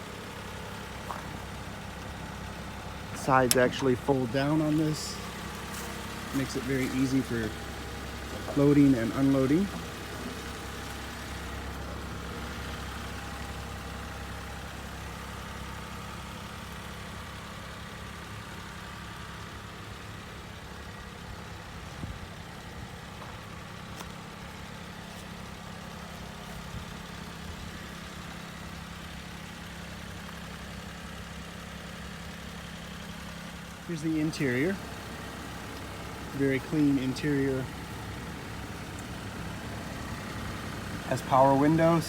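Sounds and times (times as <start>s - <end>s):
small engine idling: 0.0s - 42.0s.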